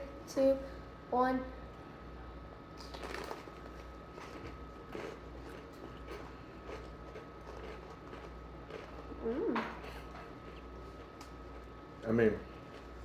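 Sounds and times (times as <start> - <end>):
crunchy food chewing: 2.8 - 13.0.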